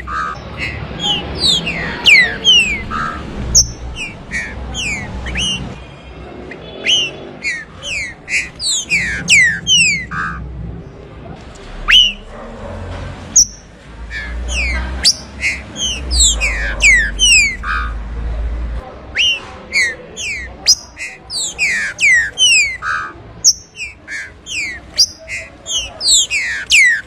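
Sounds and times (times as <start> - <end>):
bird singing whistled notes: 0.0 - 5.8, 6.5 - 10.4, 11.9 - 12.3, 13.4 - 18.0, 19.2 - 27.0.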